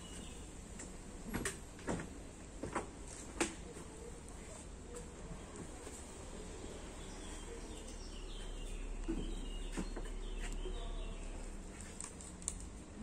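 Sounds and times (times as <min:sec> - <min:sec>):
faint birds chirping: 0:00.0 - 0:01.0, 0:03.8 - 0:12.0
low outdoor hum: 0:00.0 - 0:13.0.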